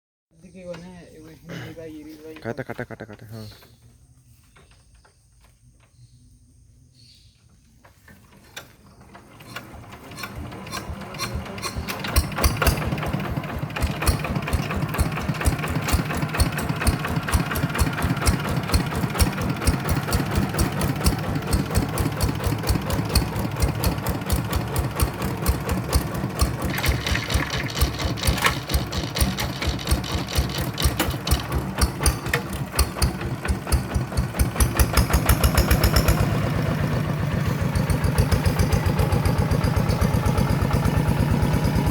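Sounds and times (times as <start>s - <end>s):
diesel engine knocking: 10.2s - 41.9s.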